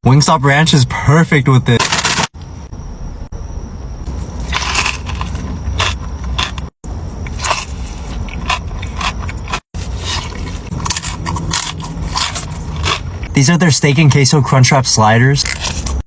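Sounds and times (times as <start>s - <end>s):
close crunching and chewing: 4.1s - 13.4s, 15.4s - 16.0s.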